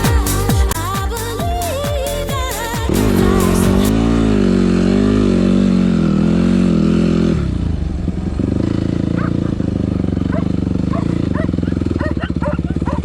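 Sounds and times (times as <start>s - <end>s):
music: 0.0s - 3.9s
motorcycle engine running: 0.0s - 13.0s.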